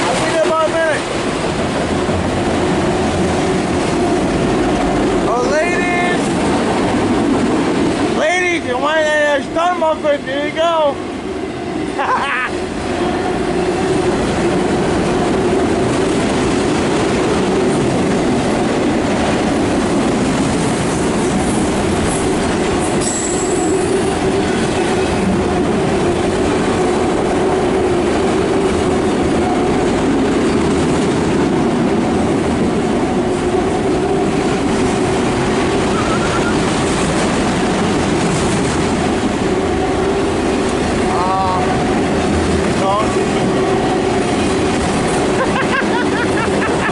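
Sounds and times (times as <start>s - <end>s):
freight train wheels clattering: 12.7s - 46.9s
high wheel squeal: 23.0s - 24.1s, 35.8s - 36.7s.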